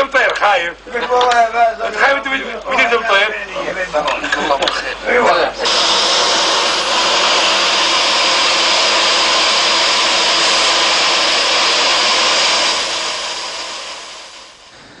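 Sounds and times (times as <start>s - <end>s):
loud rushing noise: 5.6s - 14.8s.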